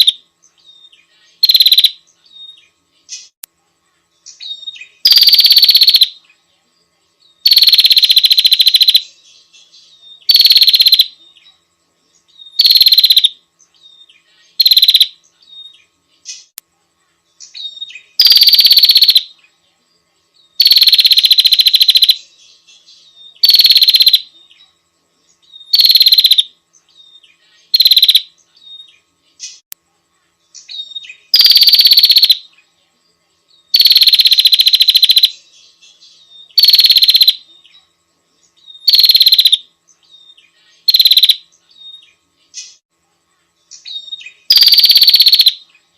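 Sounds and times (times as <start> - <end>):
bird harsh buzzing rattle call: 0.0 - 0.2, 1.3 - 2.0, 4.4 - 6.2, 7.4 - 11.2, 12.5 - 15.6, 17.5 - 19.3, 20.6 - 22.3, 22.9 - 24.3, 25.4 - 28.8, 30.7 - 32.5, 33.7 - 37.4, 38.7 - 42.8, 43.8 - 45.6.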